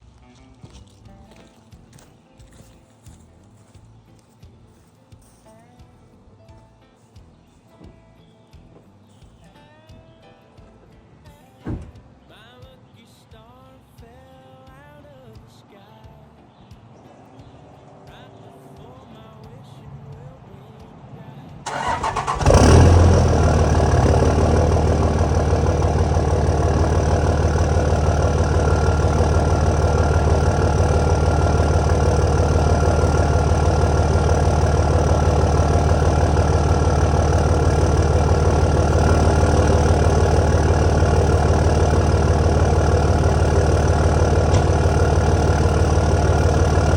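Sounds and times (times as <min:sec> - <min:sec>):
diesel engine idling: 0:21.2 - 0:46.9.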